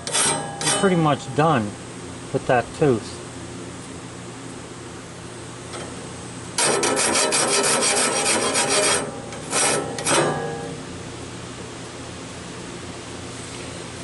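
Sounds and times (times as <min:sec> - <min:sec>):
air tool grinding saw blade: 0:06.6 - 0:10.4.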